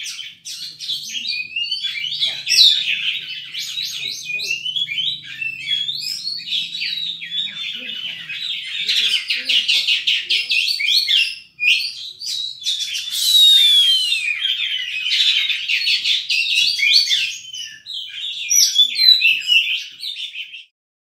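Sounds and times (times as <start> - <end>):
songbird singing chirps and trills: 0.0 - 20.7.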